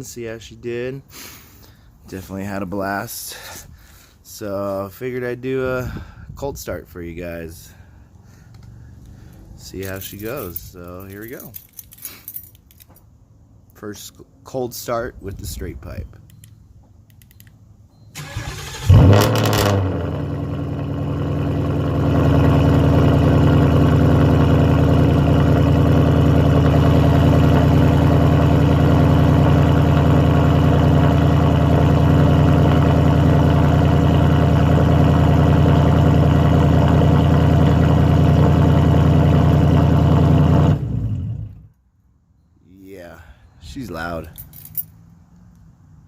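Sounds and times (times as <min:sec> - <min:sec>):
car engine cranking: 0:18.2 - 0:20.5
loud car engine idling: 0:19.9 - 0:41.6.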